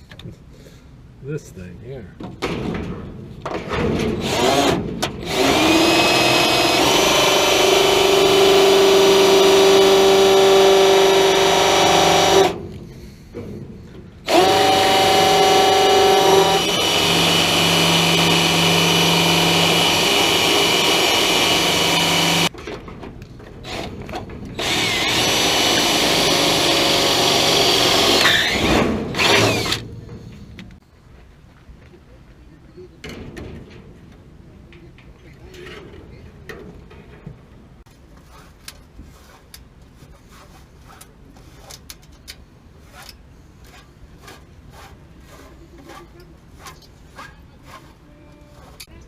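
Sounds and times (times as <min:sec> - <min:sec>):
power drill running: 0:04.2 - 0:12.6, 0:14.3 - 0:22.5, 0:24.6 - 0:29.8.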